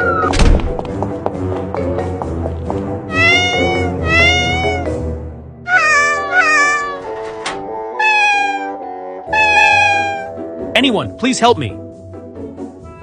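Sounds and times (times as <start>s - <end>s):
background music: 0.0s - 13.0s
kitten meowing: 3.1s - 4.9s, 5.7s - 7.0s, 8.0s - 10.3s.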